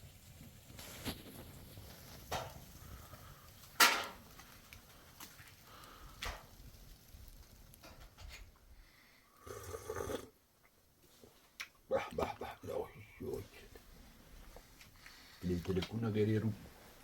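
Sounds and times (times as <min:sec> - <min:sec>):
sharp knocks and clatters: 0:03.8 - 0:04.4.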